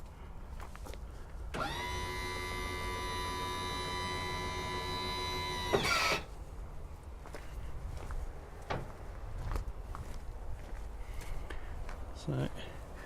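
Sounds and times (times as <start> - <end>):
hydraulic pump motor whine: 1.5 - 6.3.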